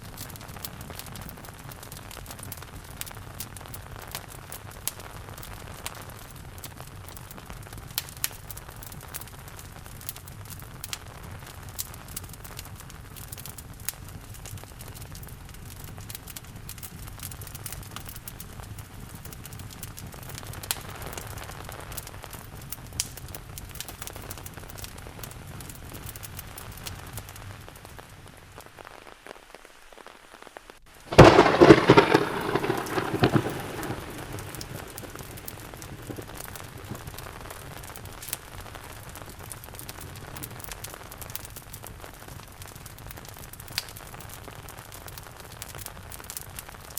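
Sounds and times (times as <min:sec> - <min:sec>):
fireplace crackling: 0:00.0 - 0:46.9
steady rain: 0:00.0 - 0:46.9
thunderclap rumbling: 0:31.1 - 0:37.2.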